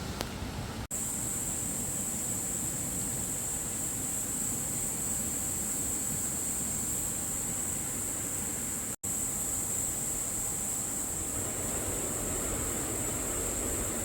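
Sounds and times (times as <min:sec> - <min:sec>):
steady rain hiss: 0:00.0 - 0:14.0
high-pitched whine: 0:10.8 - 0:14.0.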